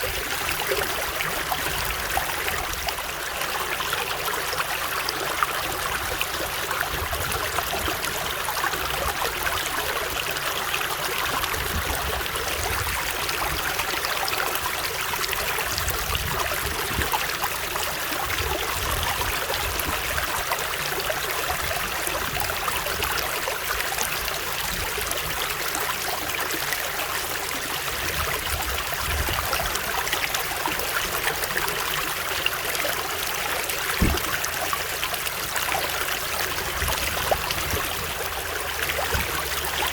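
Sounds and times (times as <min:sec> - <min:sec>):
stream water flowing: 0:00.0 - 0:39.9
brief low thump: 0:34.0 - 0:34.6.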